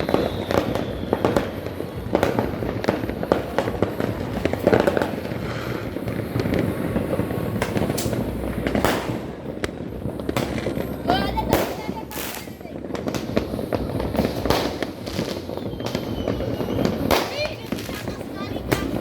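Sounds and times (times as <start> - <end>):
firecrackers and fireworks banging: 0.0 - 19.0.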